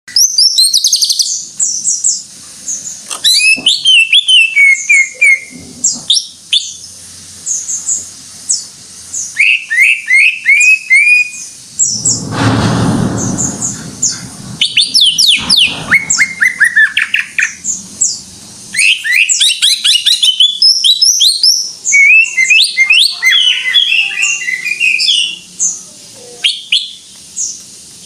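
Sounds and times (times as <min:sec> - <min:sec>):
bird high chirps and whistles: 0:00.1 - 0:02.2, 0:03.2 - 0:05.5, 0:09.2 - 0:12.0, 0:18.8 - 0:25.5, 0:26.4 - 0:27.6
rushing noise: 0:11.6 - 0:18.8
lower down-slurred whistles: 0:13.5 - 0:17.2.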